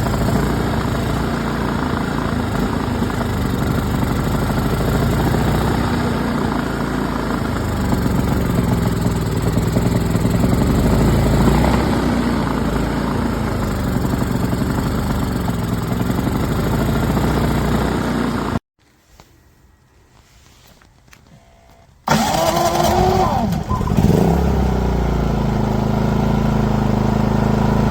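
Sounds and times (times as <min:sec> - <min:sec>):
generator engine running: 0:00.0 - 0:18.6, 0:22.0 - 0:27.9.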